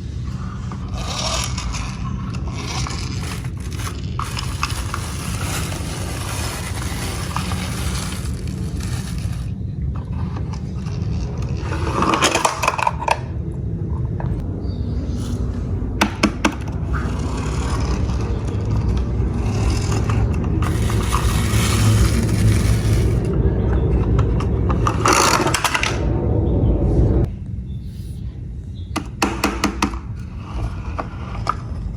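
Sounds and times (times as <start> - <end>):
low rumble: 0.0 - 29.0
toy cars rolling on a track: 0.4 - 9.5, 10.8 - 13.2, 16.9 - 23.4.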